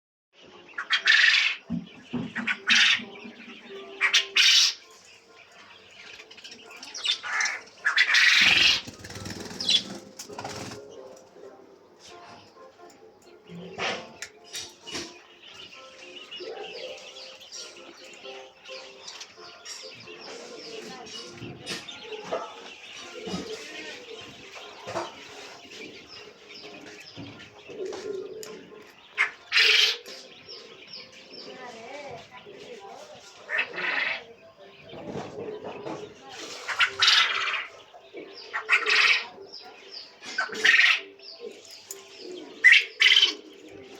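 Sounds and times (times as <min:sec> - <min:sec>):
quail calling: 0:00.7 - 0:04.9, 0:07.0 - 0:11.2, 0:13.7 - 0:31.4, 0:33.4 - 0:34.4, 0:36.4 - 0:41.6, 0:42.2 - 0:43.9.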